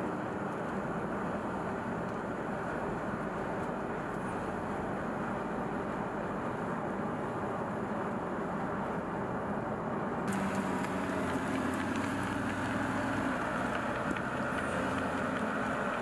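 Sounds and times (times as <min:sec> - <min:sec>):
road and wind noise: 0:00.0 - 0:16.0
car engine drone: 0:10.3 - 0:16.0.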